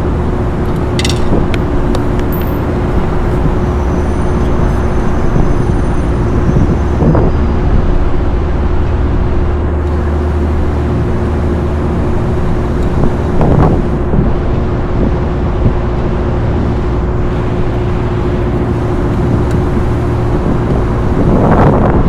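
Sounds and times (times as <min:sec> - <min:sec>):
steady mechanical drone: 0:00.0 - 0:22.0.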